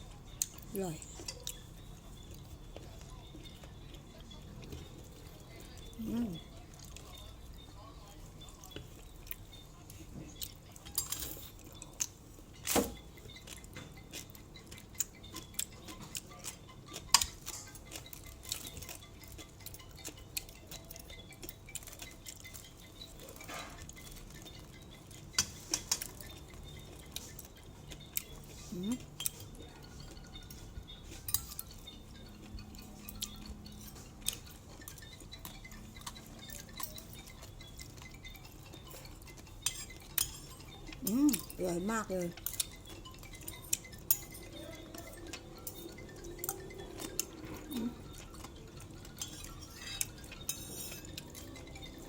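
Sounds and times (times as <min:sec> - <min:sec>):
cutlery clinking on a plate: 0:10.2 - 0:21.2, 0:21.8 - 0:24.5, 0:25.1 - 0:27.5, 0:33.8 - 0:41.6, 0:48.4 - 0:51.8.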